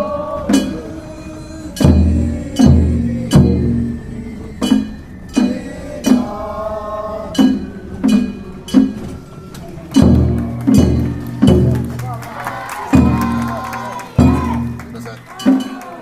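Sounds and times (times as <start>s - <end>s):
drum beat: 1.8s - 4.0s, 7.4s - 9.1s, 9.9s - 16.0s.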